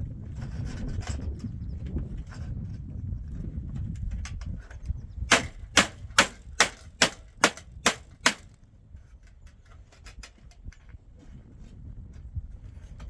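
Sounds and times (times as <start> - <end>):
hammer driving nail into wood: 5.3 - 8.5.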